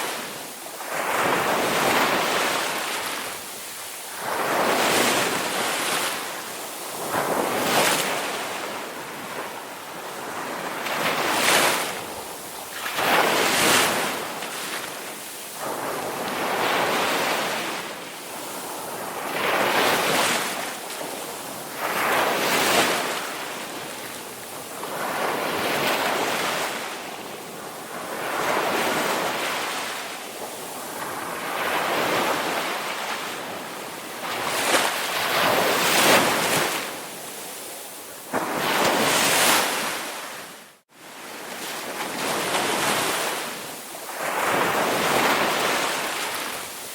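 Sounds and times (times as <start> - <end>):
ocean waves breaking: 0.0 - 46.9.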